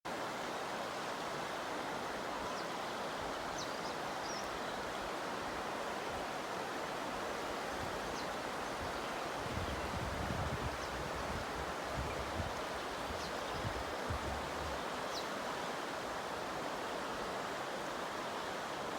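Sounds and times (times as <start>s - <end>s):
wind buffeting microphone: 9.4s - 14.8s.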